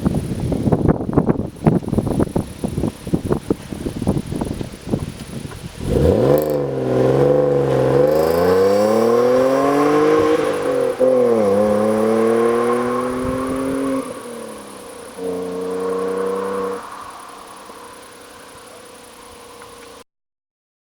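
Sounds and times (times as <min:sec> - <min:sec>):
car engine revving and accelerating: 0:05.8 - 0:20.0.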